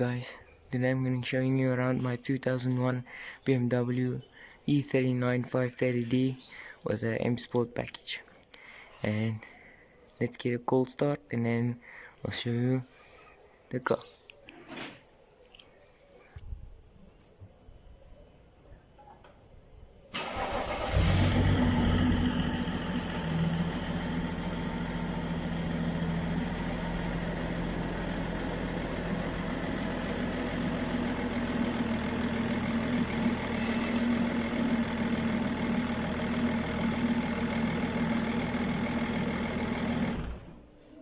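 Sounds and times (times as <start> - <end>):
diesel engine starting and idling: 20.1 - 40.7
starter motor cranking: 20.2 - 40.7.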